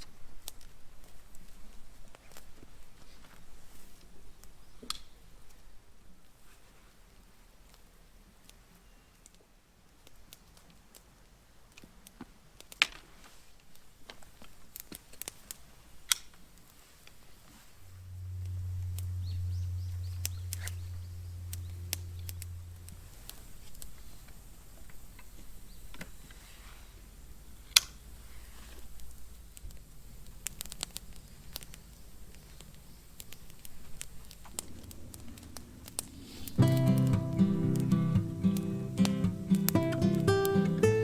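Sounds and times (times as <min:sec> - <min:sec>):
steady low hum: 0:17.6 - 0:41.0
bonfire crackling and popping: 0:27.0 - 0:41.0.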